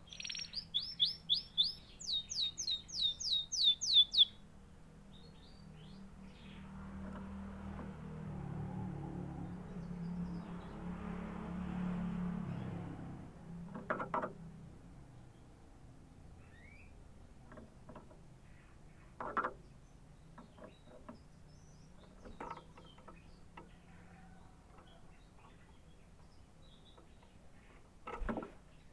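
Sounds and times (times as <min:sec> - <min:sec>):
canary chirping: 0:00.0 - 0:04.5, 0:05.1 - 0:06.7.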